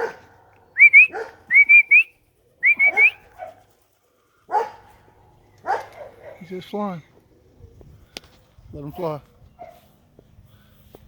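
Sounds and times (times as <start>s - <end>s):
dog barking: 0.0s - 1.5s, 2.9s - 3.6s, 4.5s - 4.9s, 5.6s - 6.5s
person whistling rising notes: 0.8s - 3.1s.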